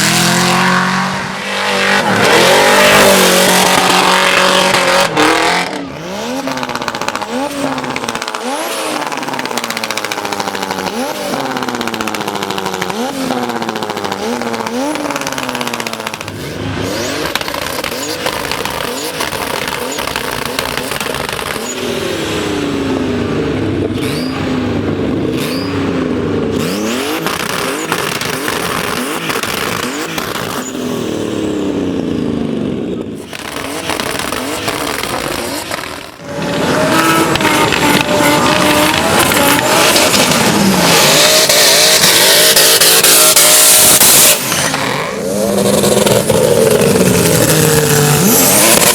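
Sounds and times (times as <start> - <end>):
car engines revving through gear changes: 0.0 - 48.9.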